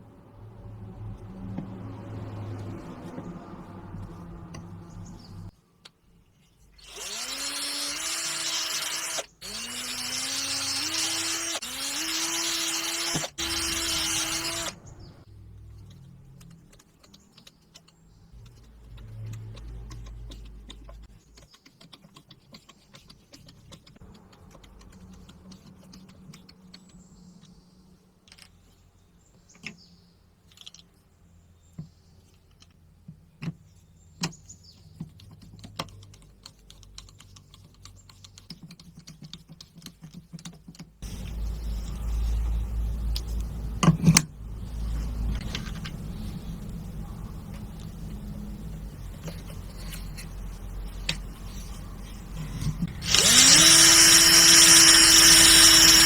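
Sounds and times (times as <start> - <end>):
electric power tool motor: 6.8 - 15.1, 52.8 - 56.0.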